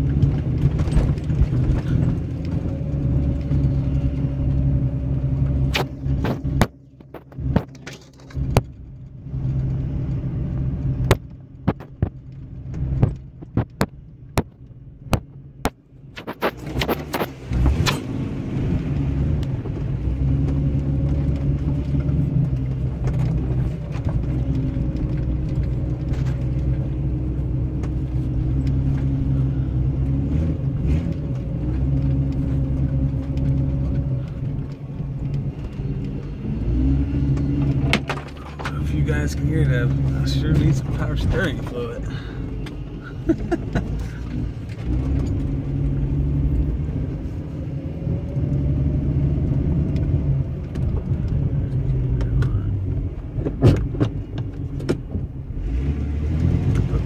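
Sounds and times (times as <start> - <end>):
sharp clicks and knocks: 0.0 - 4.3, 5.4 - 10.2, 10.8 - 18.1, 31.0 - 46.1, 49.3 - 55.3
car engine running at low speed: 0.0 - 57.0.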